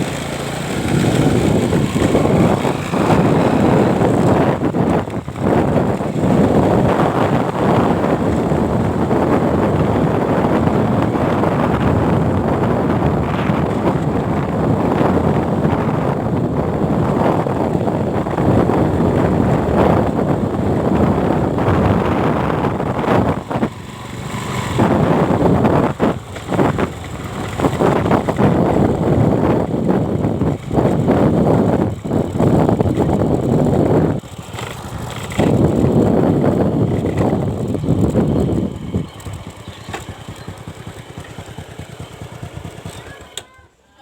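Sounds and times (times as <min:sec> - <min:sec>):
excavator diesel engine running: 0:00.0 - 0:29.4, 0:30.2 - 0:43.3
wind buffeting microphone: 0:00.0 - 0:43.2.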